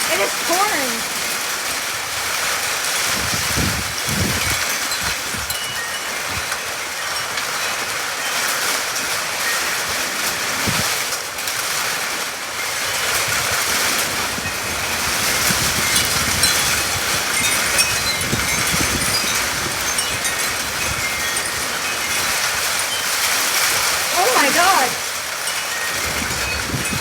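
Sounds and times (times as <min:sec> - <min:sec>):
heavy rain hissing: 0:00.0 - 0:04.7, 0:12.9 - 0:27.0.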